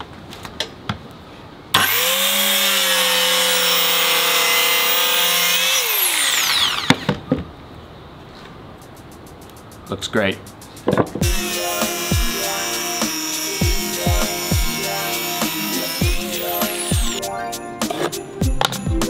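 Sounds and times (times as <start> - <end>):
circular saw cutting wood: 1.8 - 7.1, 11.2 - 18.2.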